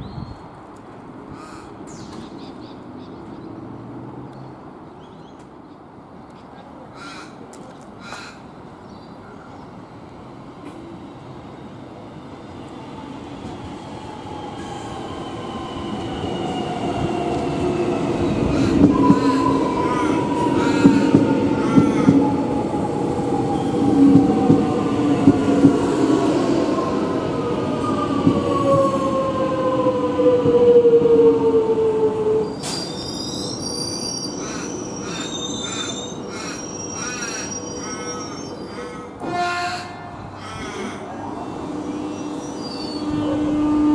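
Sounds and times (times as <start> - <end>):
train rumble: 5.4 - 43.9
train wheels squealing: 14.0 - 24.8, 32.4 - 39.2, 41.4 - 43.4.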